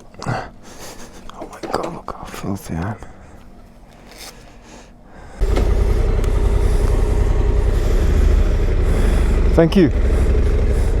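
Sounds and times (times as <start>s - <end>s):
vehicle engine humming: 5.4s - 11.0s.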